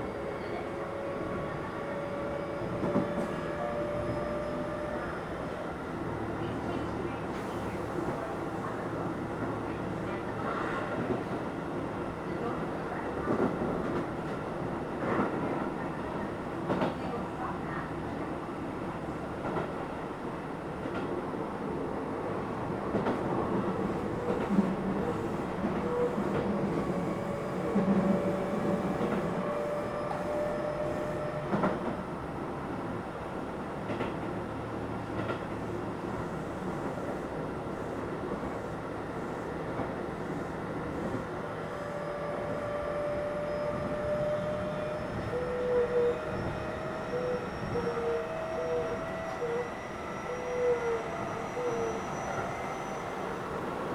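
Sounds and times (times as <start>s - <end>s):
train wheels rumbling on rail: 0.0s - 53.9s
rail joint clicks: 35.1s - 35.6s.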